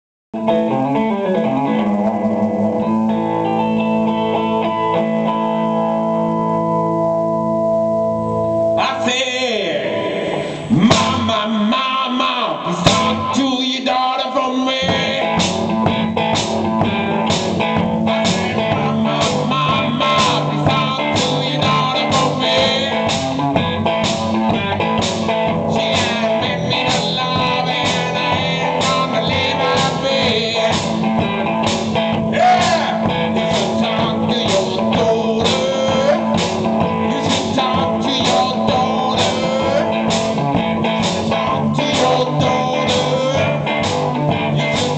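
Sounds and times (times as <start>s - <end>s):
bass: 0.3s - 44.9s
blues guitar: 0.4s - 44.9s
person singing: 8.8s - 15.6s, 18.1s - 23.2s, 25.5s - 31.6s, 32.3s - 44.9s.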